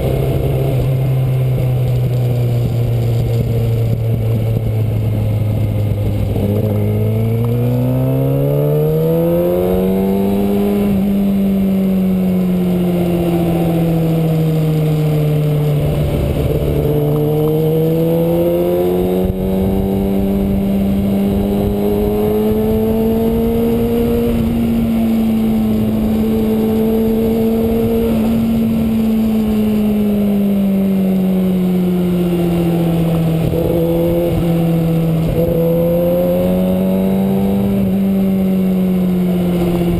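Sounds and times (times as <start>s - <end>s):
motorcycle engine running: 0.0s - 39.9s
wind on microphone: 13.2s - 30.7s, 32.4s - 38.7s.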